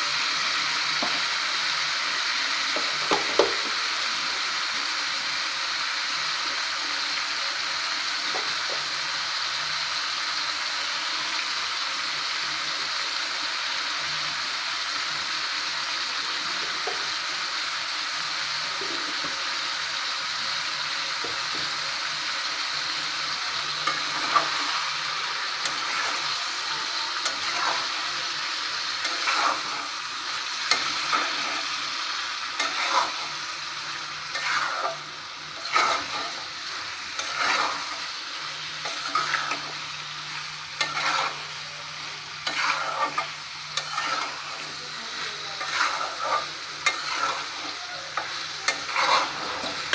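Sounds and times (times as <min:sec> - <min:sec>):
curry sizzling in a pot: 0:00.0 - 0:49.9
spatula scraping and knocking pot: 0:42.5 - 0:44.4, 0:48.2 - 0:49.9.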